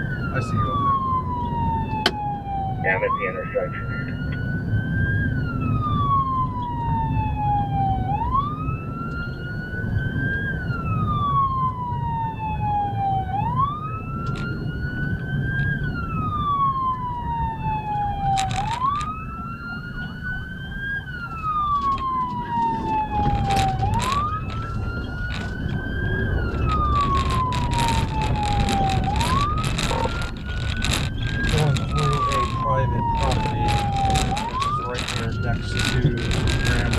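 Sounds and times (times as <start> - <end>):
police siren wailing: 0.0 - 36.9
vehicle rumble: 0.0 - 36.9
sharp clicks: 18.2 - 19.1
crackling burst: 22.5 - 36.9.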